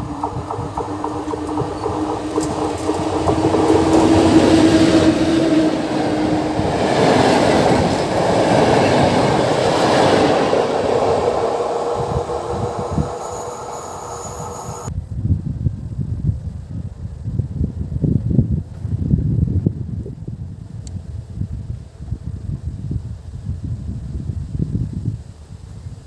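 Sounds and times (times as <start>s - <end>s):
locomotive hum: 0.0s - 14.9s
train wheels rolling on rails: 0.0s - 14.9s.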